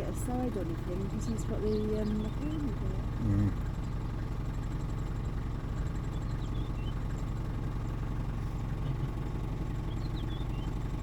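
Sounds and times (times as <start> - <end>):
vehicle engine idling: 0.0 - 11.0
faint bird chirps: 5.8 - 11.0.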